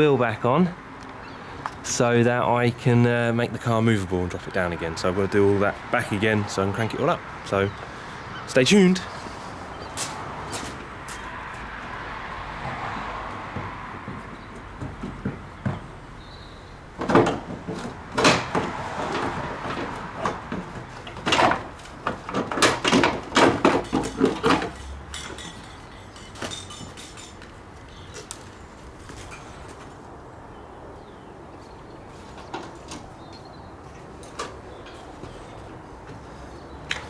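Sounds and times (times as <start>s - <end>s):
knocks and clatters of hand work: 9.9s - 16.2s, 16.8s - 29.9s, 32.2s - 37.0s.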